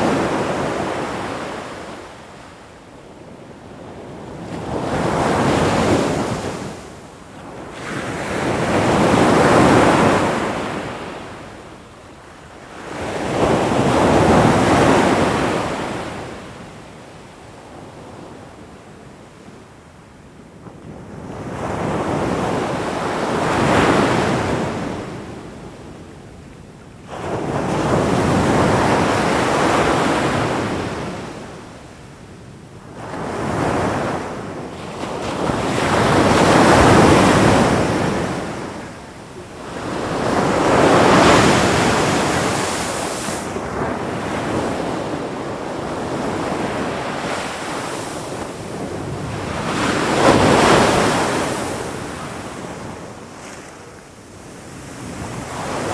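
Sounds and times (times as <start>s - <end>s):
ocean waves surging and washing: 35.0s - 53.6s, 54.8s - 55.9s.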